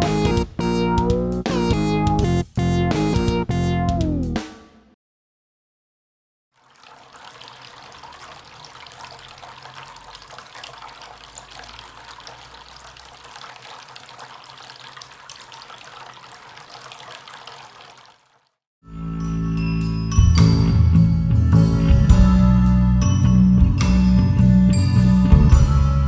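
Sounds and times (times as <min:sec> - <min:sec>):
fountain water trickling and splashing: 0:06.6 - 0:18.4.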